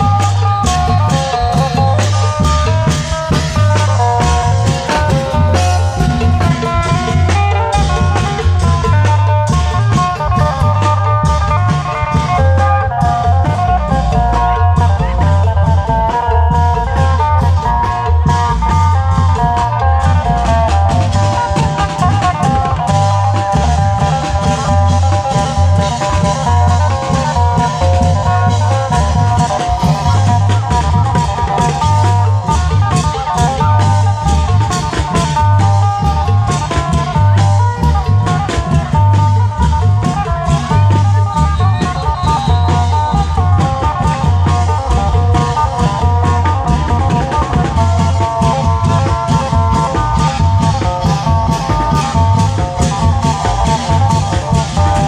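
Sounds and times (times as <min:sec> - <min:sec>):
low drum beats: 0:00.0 - 0:55.0.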